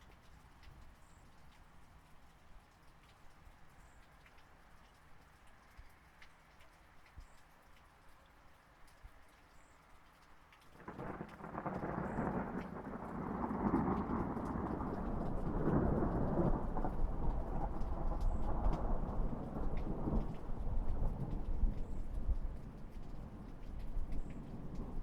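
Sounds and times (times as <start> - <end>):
light rain falling: 0.0 - 25.0
rolling thunder rumble: 10.8 - 25.0.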